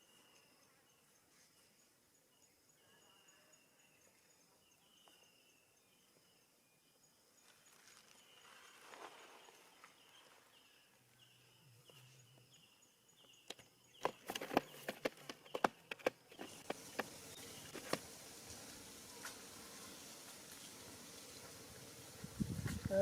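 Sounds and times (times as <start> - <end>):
sharp knocks and clicks: 13.4 - 17.2.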